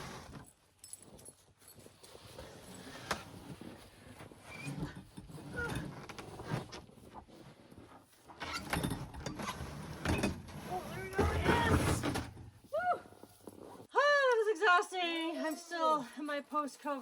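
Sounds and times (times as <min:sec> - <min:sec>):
freezer knocking and scraping: 0:08.4 - 0:12.6.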